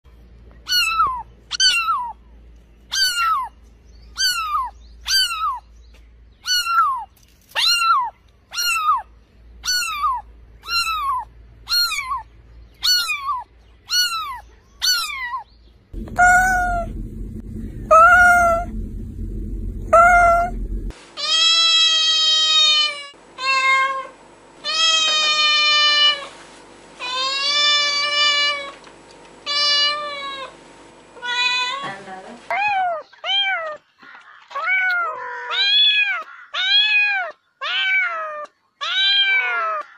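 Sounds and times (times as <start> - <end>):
cat meowing: 19.9 - 20.5, 34.5 - 39.8.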